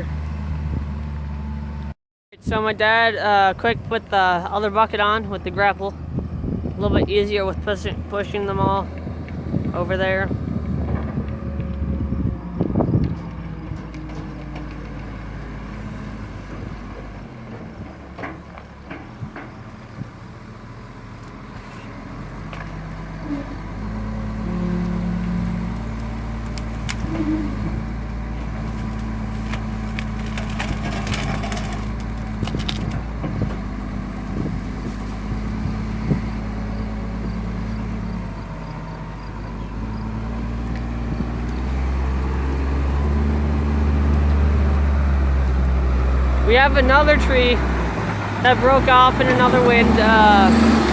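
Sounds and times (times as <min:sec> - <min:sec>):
diesel loader engine under load: 0:00.0 - 0:50.9
wood cracking and snapping: 0:25.7 - 0:27.6, 0:28.2 - 0:35.2.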